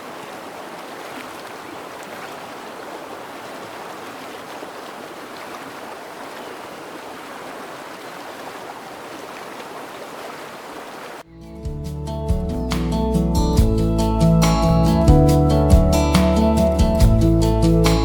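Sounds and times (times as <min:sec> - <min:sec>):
creek water rushing: 0:00.0 - 0:11.3.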